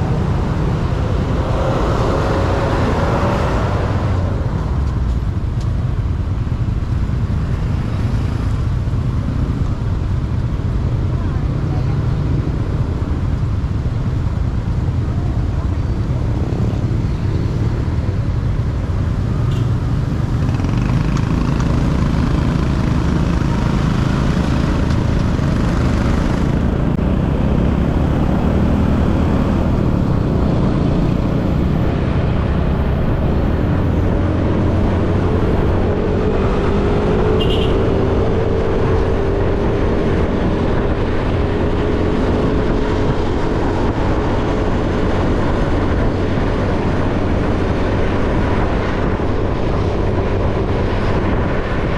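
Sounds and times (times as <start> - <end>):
road and wind noise: 0.0 - 51.9
motorcycle engine running: 18.4 - 27.6, 36.5 - 45.4.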